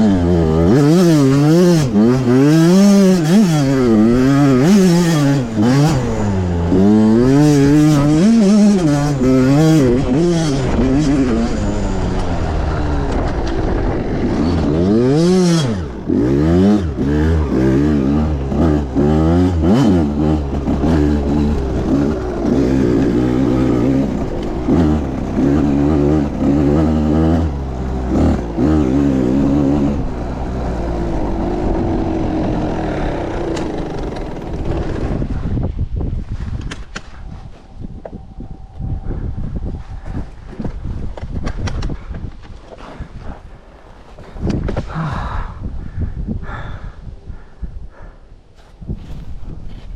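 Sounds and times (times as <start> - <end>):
motorbike engine revving: 0.0 - 35.6.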